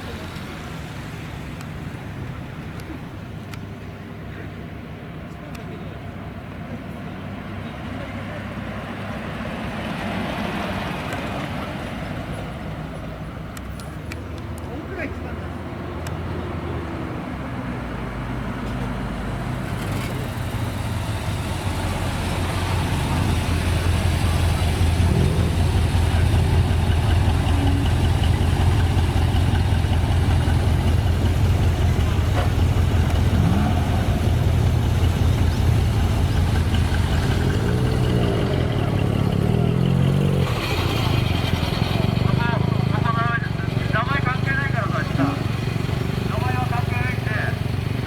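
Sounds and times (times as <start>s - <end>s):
car engine running steadily: 18.6s - 39.4s, 40.8s - 48.0s.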